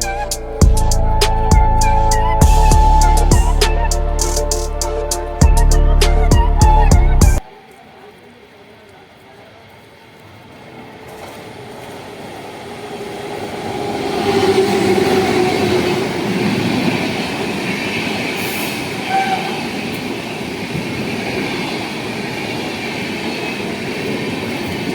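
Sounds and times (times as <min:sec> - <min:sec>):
train wheels on rails: 0:07.8 - 0:24.9.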